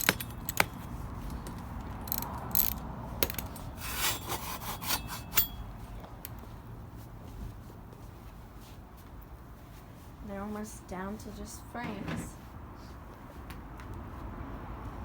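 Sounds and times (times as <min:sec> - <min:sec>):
metal parts scraping: 0:00.0 - 0:05.6.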